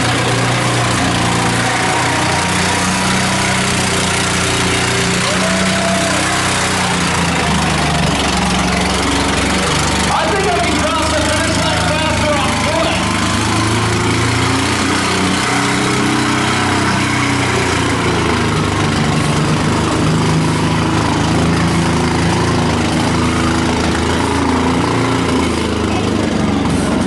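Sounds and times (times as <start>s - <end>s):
truck engine running hard: 0.0s - 27.0s.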